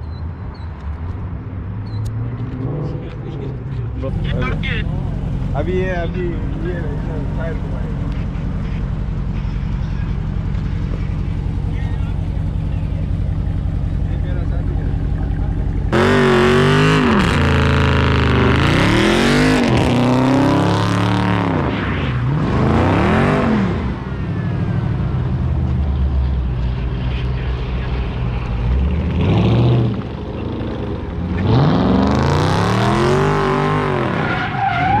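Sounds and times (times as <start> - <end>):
car engine revving hard: 15.9 - 21.7, 22.3 - 24.0, 29.0 - 30.0, 31.4 - 35.0.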